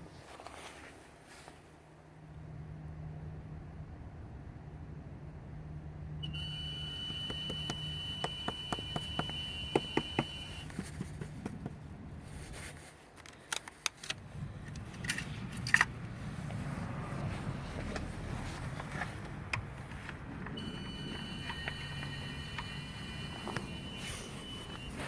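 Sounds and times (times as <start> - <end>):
low hum from engine bay: 0.1 - 13.0, 14.0 - 25.0
sharp clicks: 6.2 - 11.6
steady high tone: 20.6 - 25.0.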